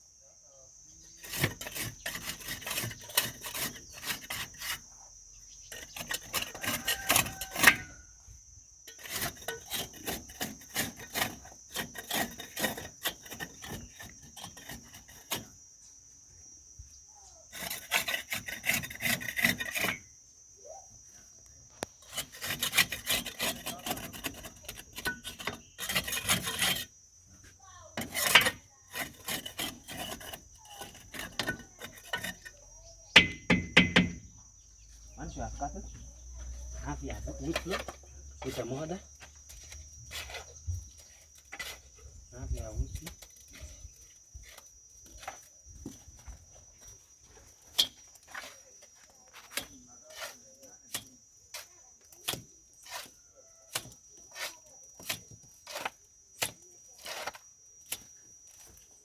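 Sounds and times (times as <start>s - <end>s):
hand tool scraping mortar: 1.0s - 8.0s, 8.8s - 15.6s, 17.4s - 20.2s, 21.7s - 34.3s, 35.8s - 59.0s
sharp knocks: 33.2s - 34.3s.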